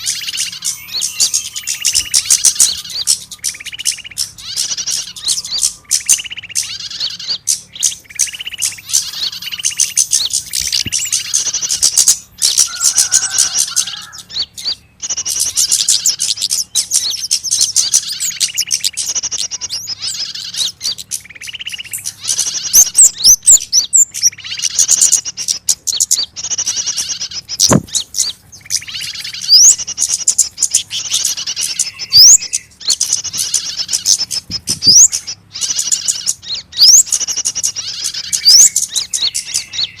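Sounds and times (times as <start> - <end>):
small birds alarm calls: 0.0 - 40.0
low thump: 27.7 - 28.0.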